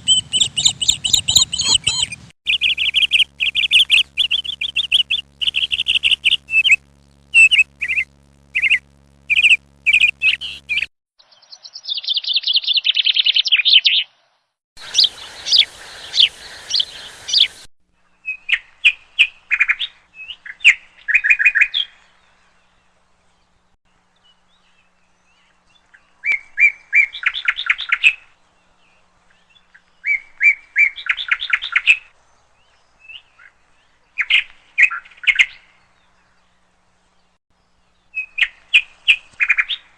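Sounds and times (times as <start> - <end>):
bird chattering calls: 0.0 - 10.9, 14.8 - 17.7.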